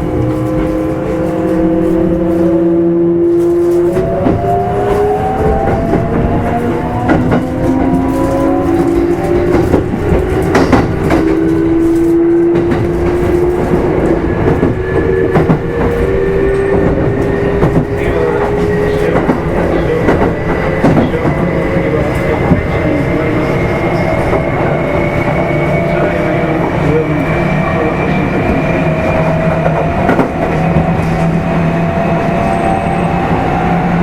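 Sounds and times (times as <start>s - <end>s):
wheels rumbling on rail: 0.0s - 34.0s.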